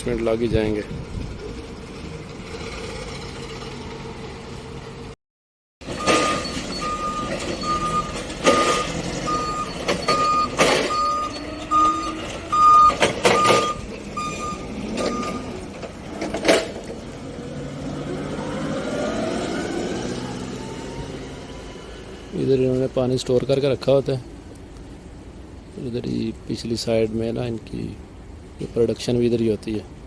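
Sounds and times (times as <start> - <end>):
forklift reversing alarm beeping: 5.8 - 15.6
pallets knocking and clunking: 5.8 - 16.9
rising motor whine: 17.2 - 22.4.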